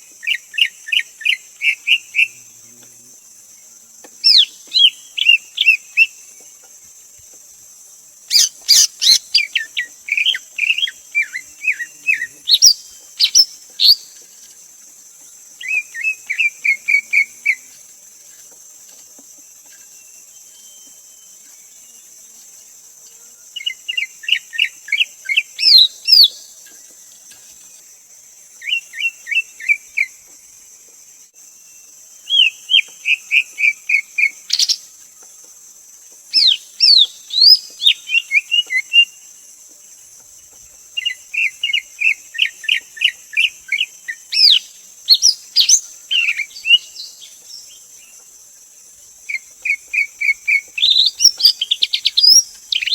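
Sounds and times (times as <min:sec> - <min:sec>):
bird whistling song: 0:04.2 - 0:06.2, 0:08.3 - 0:14.2, 0:23.6 - 0:26.4, 0:32.2 - 0:34.9, 0:36.3 - 0:39.2, 0:41.0 - 0:47.7, 0:49.3 - 0:52.9.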